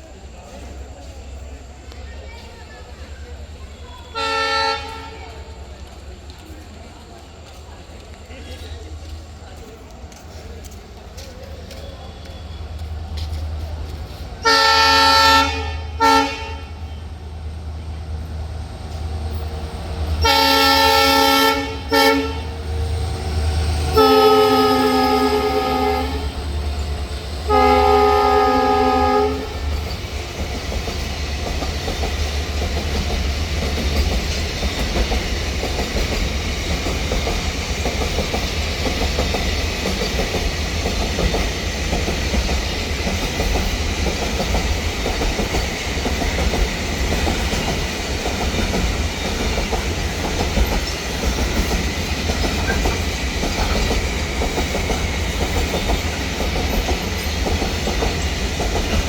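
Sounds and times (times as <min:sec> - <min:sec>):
train running along track: 0:00.0 - 0:59.0
locomotive horn: 0:04.0 - 0:05.4, 0:14.4 - 0:17.1, 0:20.2 - 0:22.6, 0:23.9 - 0:26.5, 0:27.5 - 0:29.7.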